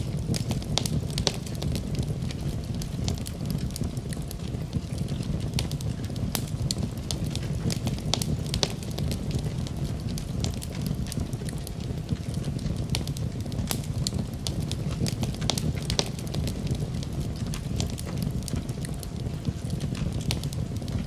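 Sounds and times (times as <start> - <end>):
burning wood crackling and popping: 0.0 - 21.0
fire rumbling: 0.0 - 21.0.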